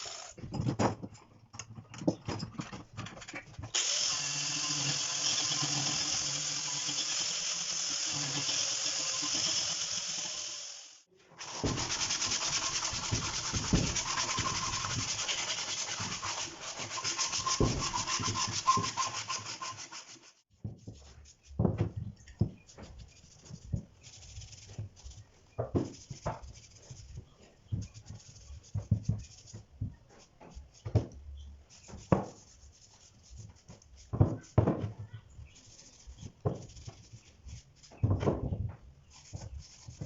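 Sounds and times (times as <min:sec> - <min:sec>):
wood being sanded: 0:00.0 - 0:00.4, 0:03.7 - 0:21.6, 0:35.4 - 0:38.0, 0:39.1 - 0:40.0
rubbing strokes: 0:11.4 - 0:21.8, 0:22.4 - 0:38.2, 0:39.0 - 0:40.0.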